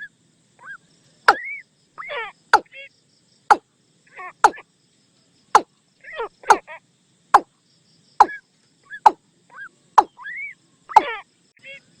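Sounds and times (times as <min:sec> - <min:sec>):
watercock calls: 0:01.3 - 0:02.7, 0:04.4 - 0:04.6, 0:10.0 - 0:11.2.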